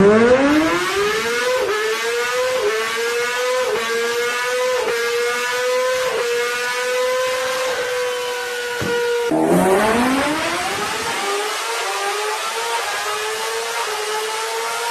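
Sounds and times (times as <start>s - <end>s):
motorbike engine at high revs: 0.0s - 14.9s.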